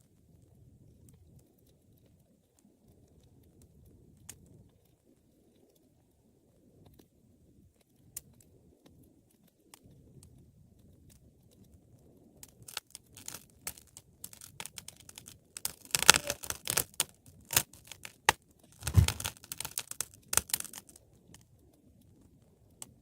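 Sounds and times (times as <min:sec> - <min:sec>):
wood fire crackling and popping: 0:00.1 - 0:23.0
low thud: 0:18.8 - 0:19.3.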